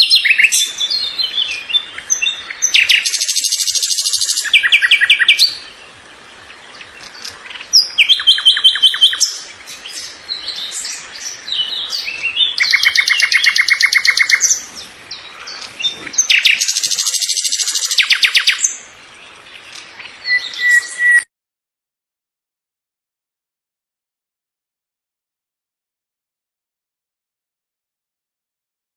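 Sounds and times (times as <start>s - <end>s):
songbirds chirping: 0.0s - 21.3s.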